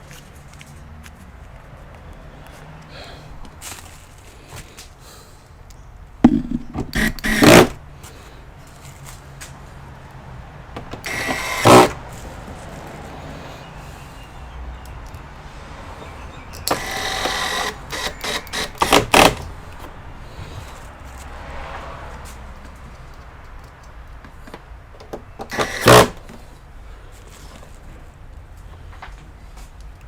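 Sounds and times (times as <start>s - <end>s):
plastic clicks and knocks: 6.2s - 7.7s.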